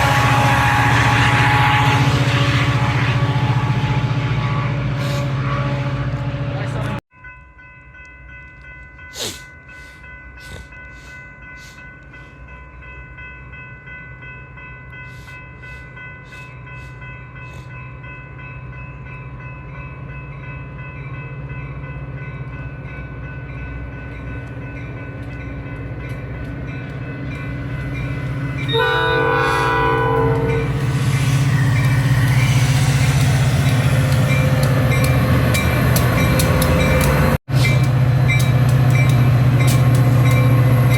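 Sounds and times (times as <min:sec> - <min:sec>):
train horn blast: 0:00.0 - 0:07.0, 0:28.5 - 0:35.3
train approaching: 0:00.0 - 0:40.9.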